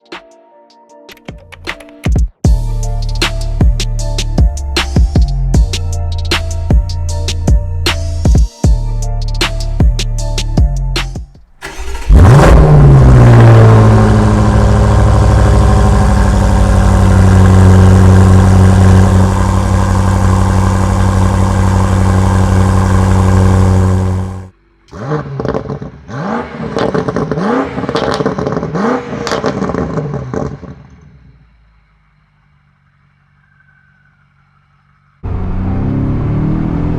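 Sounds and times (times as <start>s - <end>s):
car engine starting and idling: 11.4s - 36.9s
exhaust crackles and pops: 11.5s - 26.0s
car engine revving: 11.5s - 36.9s.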